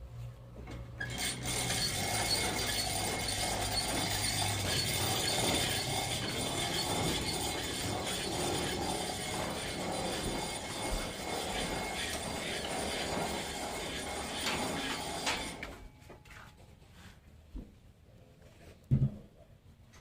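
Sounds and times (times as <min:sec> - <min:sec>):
low motor hum: 0:00.0 - 0:15.8
continuous mechanical rattle: 0:00.6 - 0:16.8.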